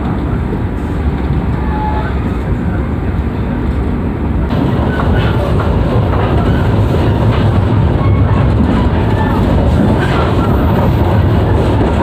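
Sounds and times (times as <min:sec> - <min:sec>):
train rumbling inside coach: 0:00.0 - 0:12.0.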